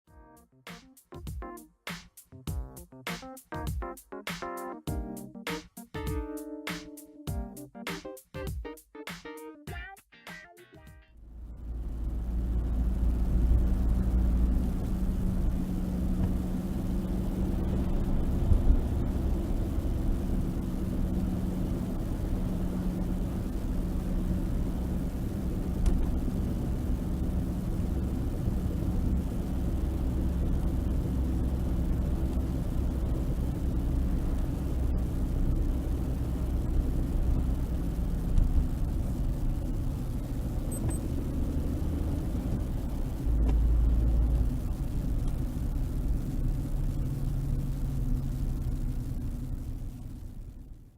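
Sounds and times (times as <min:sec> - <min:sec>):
drivetrain and road rumble: 0:11.2 - 0:50.9.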